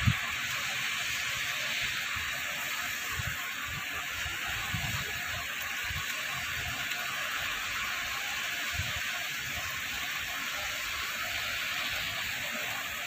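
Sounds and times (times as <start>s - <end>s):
rain hissing: 0.0s - 13.0s
wind buffeting microphone: 3.1s - 6.1s.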